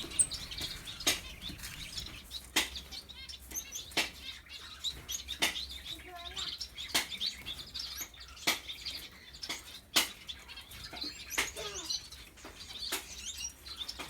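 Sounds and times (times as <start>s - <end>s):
wings fluttering: 0.0s - 2.8s
finches chirping: 0.0s - 14.0s.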